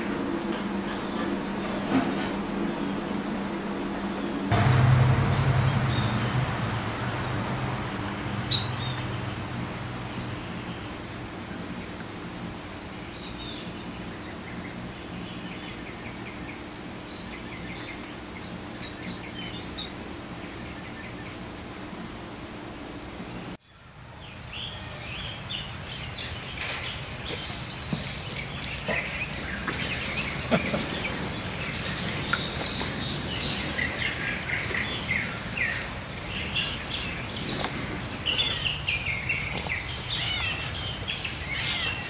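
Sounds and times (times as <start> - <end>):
outdoor background noise: 0.0 - 42.0
small birds chirping: 4.2 - 12.2, 23.6 - 42.0.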